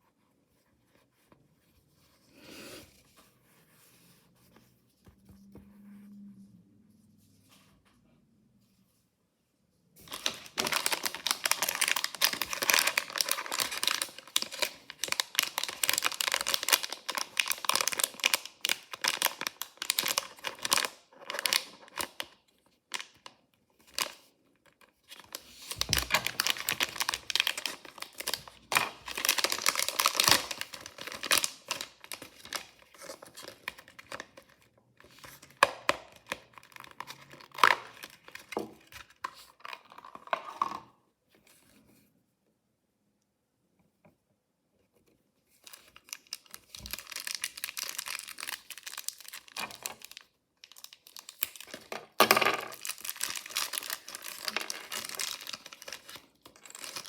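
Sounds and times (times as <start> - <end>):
wrapper tearing and crinkling: 10.0 - 22.2, 25.2 - 34.3, 45.7 - 57.0.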